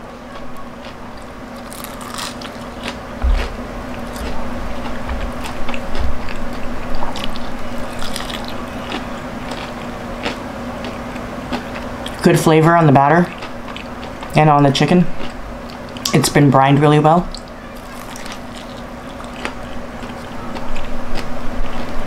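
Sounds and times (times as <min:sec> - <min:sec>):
crunchy chewing: 0:00.3 - 0:12.3, 0:13.2 - 0:14.4, 0:15.1 - 0:16.1, 0:17.3 - 0:22.0
dull low thumps: 0:03.2 - 0:06.3.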